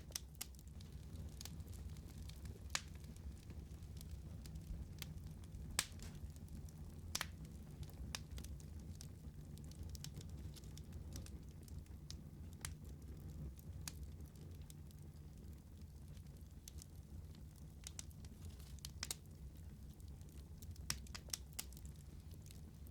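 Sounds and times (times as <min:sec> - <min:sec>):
fire crackles and pops: 0:00.0 - 0:22.9
wood fire rumbling: 0:00.0 - 0:22.9.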